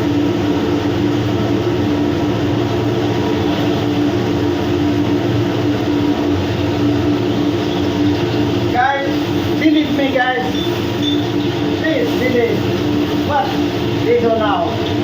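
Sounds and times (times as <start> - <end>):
machinery drone: 0.0 - 15.0.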